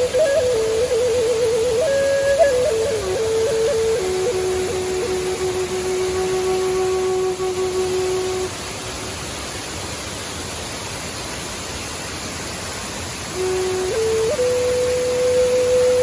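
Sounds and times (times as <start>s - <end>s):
held musical tone: 0.0s - 8.5s
waterfall rushing: 0.0s - 16.0s.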